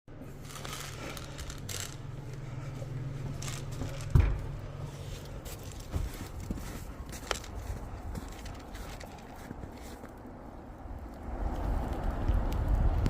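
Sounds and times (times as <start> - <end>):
steady low hum: 0.1 - 13.0
handling rustles and clinks: 0.3 - 10.2.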